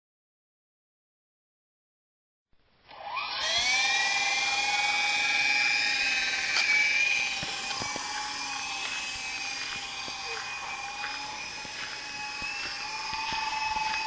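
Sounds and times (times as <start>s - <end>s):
rc helicopter motor whine: 2.9s - 14.0s.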